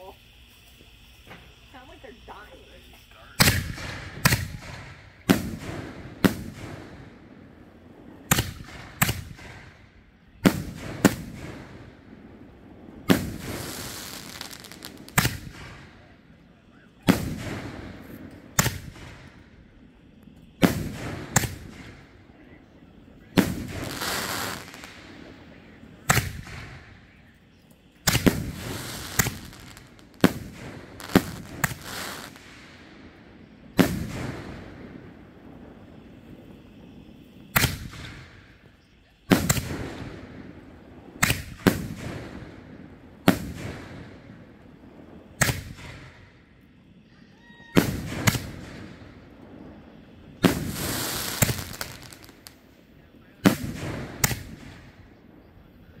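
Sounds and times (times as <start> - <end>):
firework shells booming: 0.8 - 56.0.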